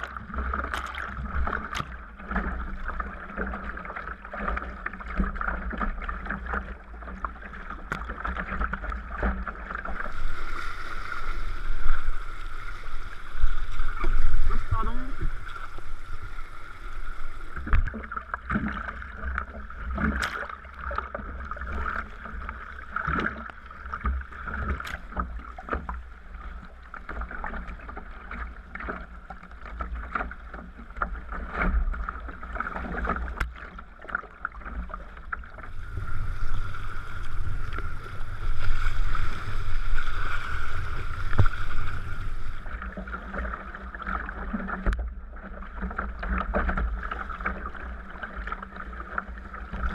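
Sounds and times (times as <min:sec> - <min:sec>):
paddle splashes: 0:00.0 - 0:49.9
water washing along kayak hull: 0:00.0 - 0:49.9
low rumble: 0:35.5 - 0:43.1.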